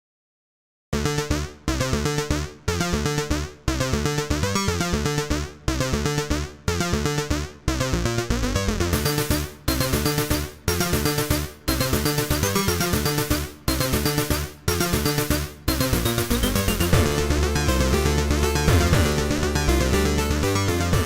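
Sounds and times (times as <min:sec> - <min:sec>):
electronic music with synthesizer: 0:01.0 - 0:21.0.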